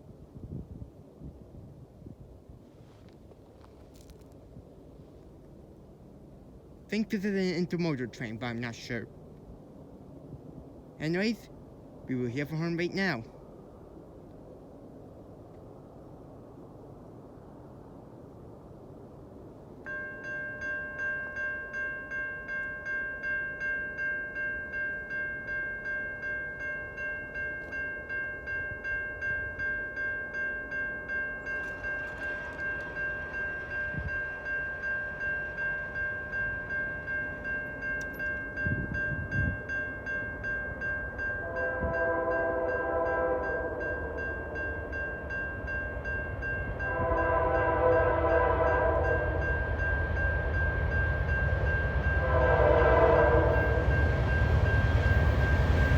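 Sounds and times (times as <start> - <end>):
train rumble: 18.5 - 55.9
level crossing bell ringing: 19.9 - 41.8
locomotive horn blasts: 41.4 - 44.2, 46.8 - 49.6, 52.0 - 54.1.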